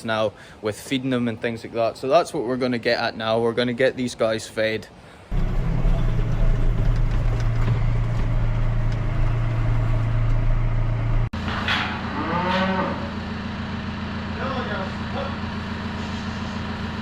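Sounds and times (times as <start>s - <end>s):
diesel tractor engine droning: 5.3s - 17.0s
cow mooing: 12.0s - 13.2s.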